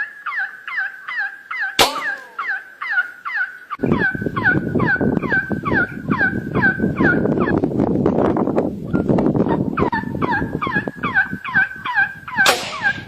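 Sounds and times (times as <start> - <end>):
bird calling downward notes: 0.0 - 7.2.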